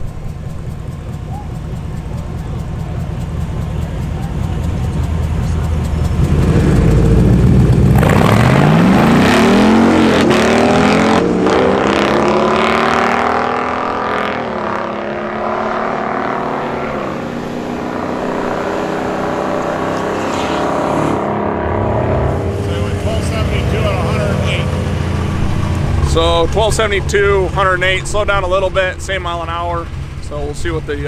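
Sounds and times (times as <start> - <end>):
engine rumbling and revving: 0.0 - 31.0.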